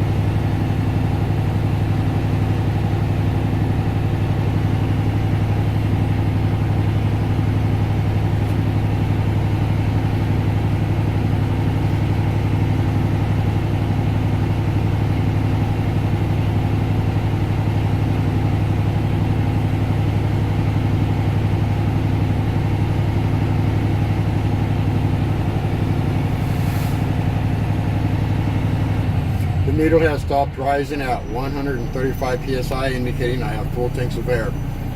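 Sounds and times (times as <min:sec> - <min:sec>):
diesel truck engine idling: 0:00.0 - 0:34.9
air compressor running: 0:24.6 - 0:28.9.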